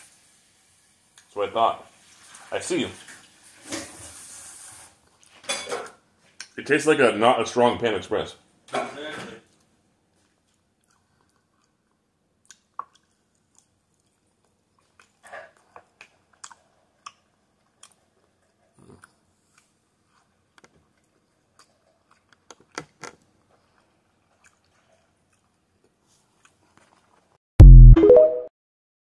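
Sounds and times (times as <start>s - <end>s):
person chewing food: 10.1s - 27.2s
end-screen sound effect: 27.6s - 28.5s.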